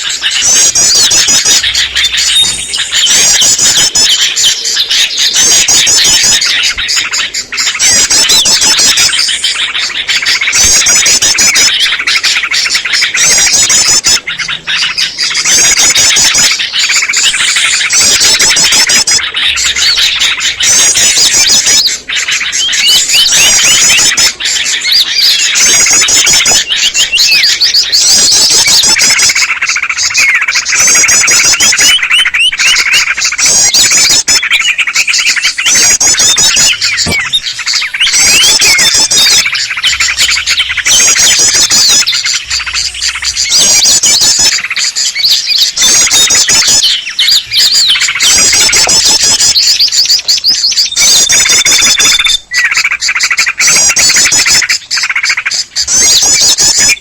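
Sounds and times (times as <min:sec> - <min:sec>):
bulbuls chattering: 0:00.0 - 0:57.0
small birds chirping and trilling: 0:00.0 - 0:57.0.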